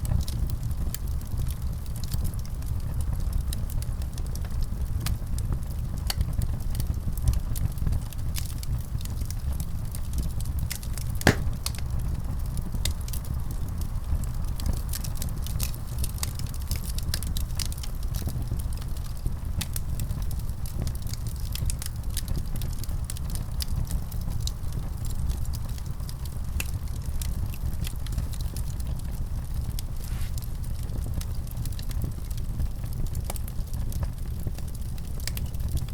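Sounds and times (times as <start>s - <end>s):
fire crackling: 0.0s - 35.9s
fire flames rumbling: 0.0s - 35.9s
wood fire popping: 8.2s - 13.8s, 19.4s - 35.9s.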